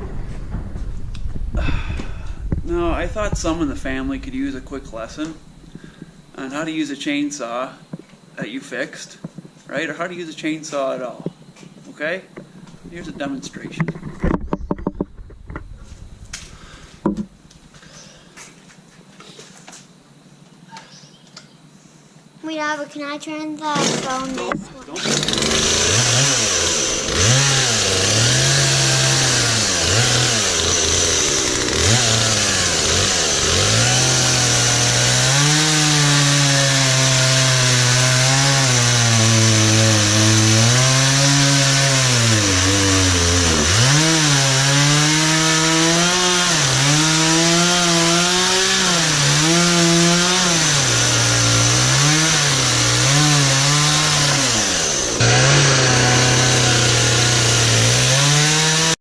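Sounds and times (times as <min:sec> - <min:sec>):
chainsaw cutting wood: 0:23.7 - 0:59.0.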